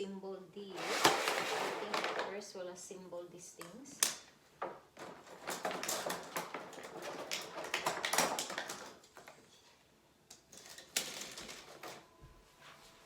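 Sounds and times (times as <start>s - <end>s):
plastic parts tapping and clicking: 4.0s - 9.5s.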